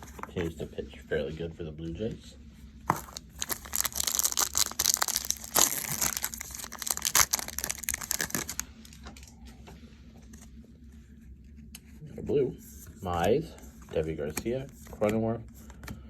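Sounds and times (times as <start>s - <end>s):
foil wrapper tearing and crinkling: 2.9s - 8.7s.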